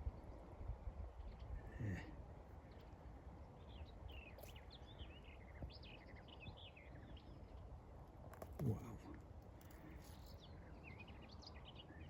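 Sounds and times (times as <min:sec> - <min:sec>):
songbird chirping: 0:02.6 - 0:07.7, 0:09.8 - 0:12.0.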